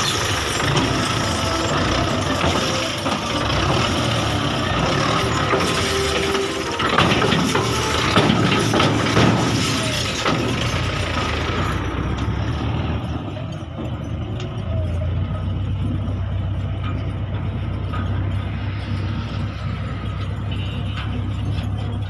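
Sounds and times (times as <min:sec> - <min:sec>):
knocks and clattering: 0:00.0 - 0:22.0
tractor diesel engine running: 0:00.0 - 0:22.0.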